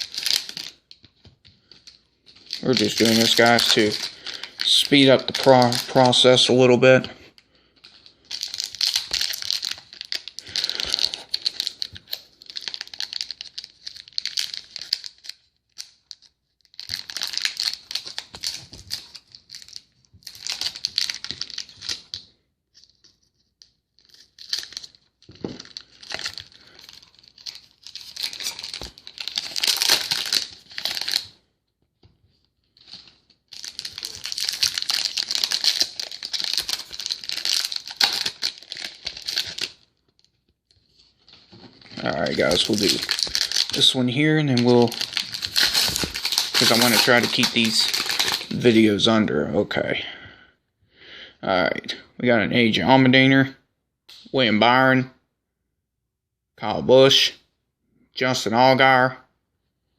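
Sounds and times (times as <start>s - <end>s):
wrappers tearing and crinkling: 0.0s - 1.0s, 1.6s - 6.7s, 7.8s - 22.2s, 24.0s - 31.4s, 32.8s - 40.2s, 41.1s - 48.9s.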